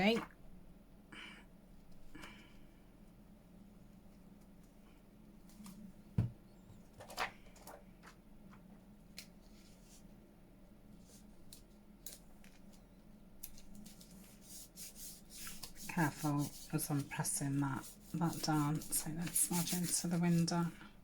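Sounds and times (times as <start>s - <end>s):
paper scraping rustle: 13.5s - 20.7s.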